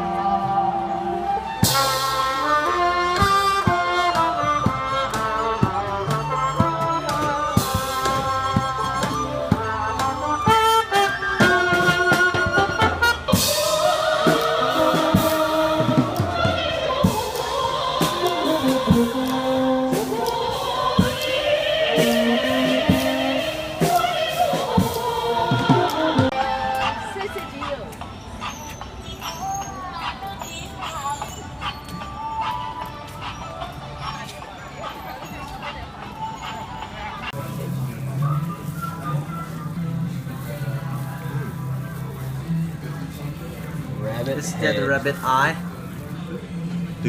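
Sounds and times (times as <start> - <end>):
live band music: 0.0 - 29.0
drum strokes: 1.6 - 29.5.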